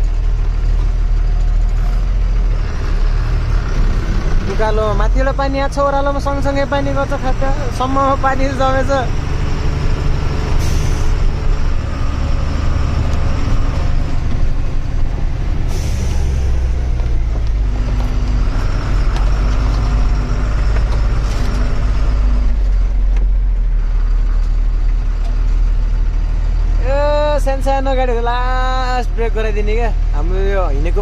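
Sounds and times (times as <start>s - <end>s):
diesel truck engine running: 0.0s - 31.0s
air brake hisses: 10.6s - 11.2s, 15.7s - 16.5s.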